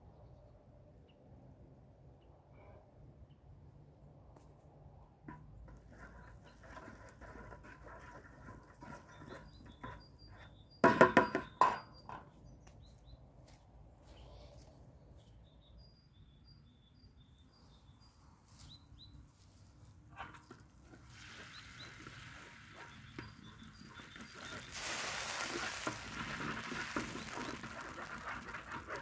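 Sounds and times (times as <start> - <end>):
small birds chirping: 8.8 - 29.0
steady hiss: 24.2 - 29.0.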